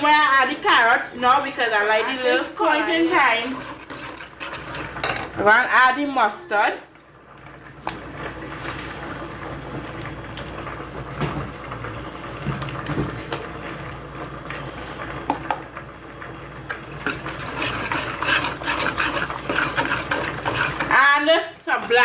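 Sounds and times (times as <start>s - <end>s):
pot boiling: 0.0s - 22.0s
kitchen utensils clinking: 2.0s - 5.4s, 16.7s - 22.0s.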